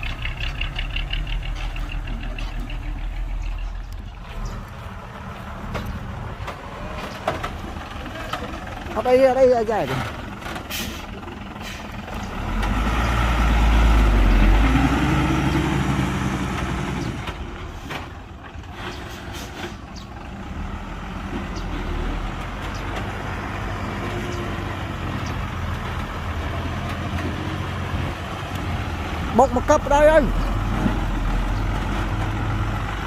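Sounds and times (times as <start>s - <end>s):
heavy diesel engine rumble: 0.0s - 33.0s.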